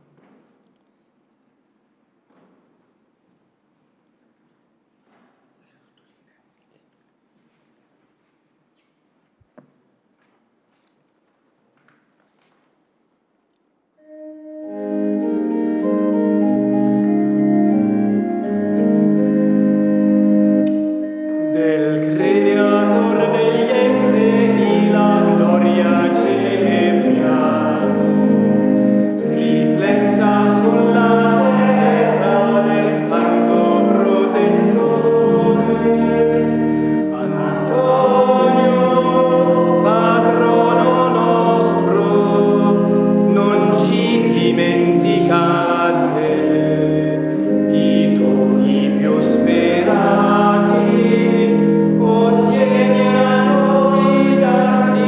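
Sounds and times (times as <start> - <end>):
organ chords: 14.0 - 55.0
choir singing a hymn: 14.1 - 55.0.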